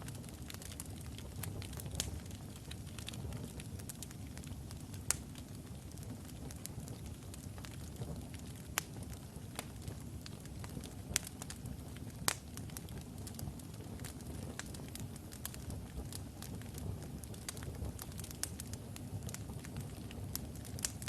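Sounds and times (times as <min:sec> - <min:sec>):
fire rumbling: 0:00.0 - 0:21.0
wood crackling and popping: 0:00.0 - 0:21.0.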